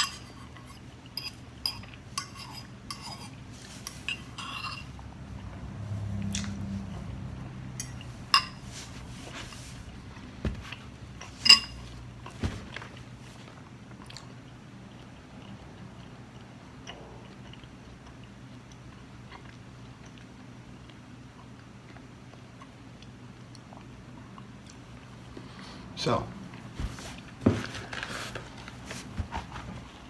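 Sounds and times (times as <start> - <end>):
utensil clinking against a bowl: 0.0 - 5.0, 7.7 - 9.6, 10.6 - 12.8.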